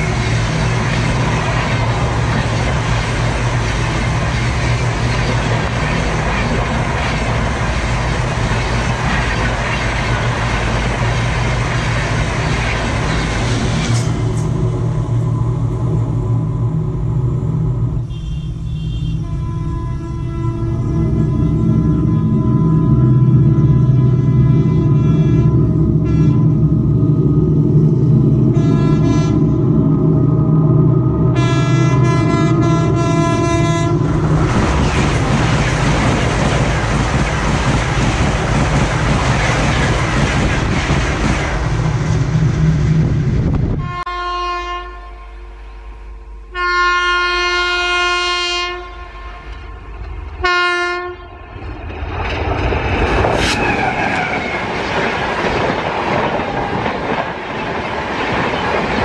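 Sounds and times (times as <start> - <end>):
train rushing past: 0.0 - 59.0
locomotive horn blasts: 18.0 - 26.8, 28.5 - 29.6, 31.3 - 34.1, 43.8 - 45.5, 46.5 - 51.4.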